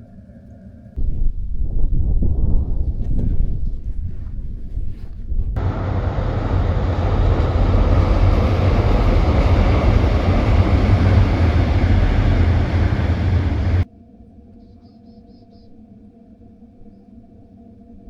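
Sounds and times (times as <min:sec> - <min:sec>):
train passing rumble: 0:05.6 - 0:13.9.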